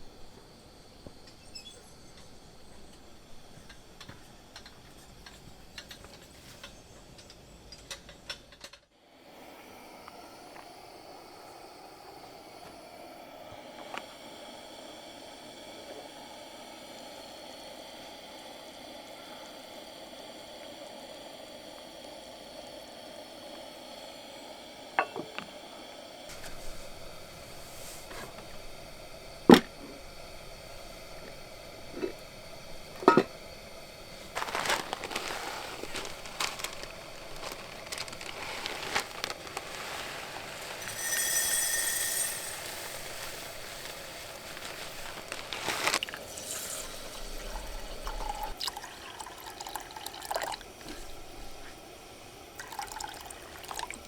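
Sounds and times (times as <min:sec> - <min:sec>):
steady background hush: 0:09.2 - 0:41.0
light sizzling: 0:09.3 - 0:54.0
cookware clicks and knocks: 0:33.0 - 0:33.3
high whistle-like tone: 0:40.9 - 0:42.6.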